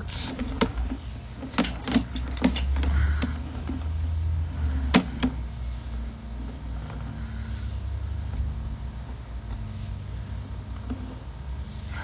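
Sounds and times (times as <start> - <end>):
low rumble: 2.8 - 12.0.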